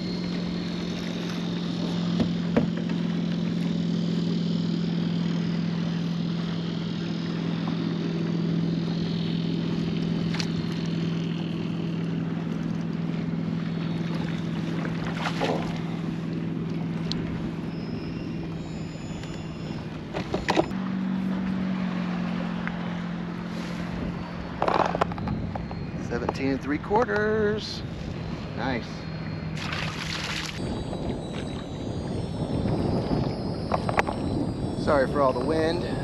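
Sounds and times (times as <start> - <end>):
electric motor humming: 0.0 - 36.0
wind noise: 23.6 - 36.0.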